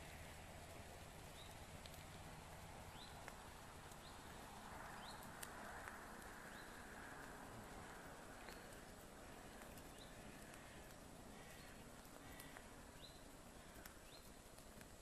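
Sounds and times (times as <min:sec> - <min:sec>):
small bird chirping: 0:01.3 - 0:02.0, 0:02.9 - 0:05.3, 0:06.4 - 0:06.9, 0:08.4 - 0:14.6
faint clicks: 0:01.3 - 0:02.3, 0:02.9 - 0:15.0.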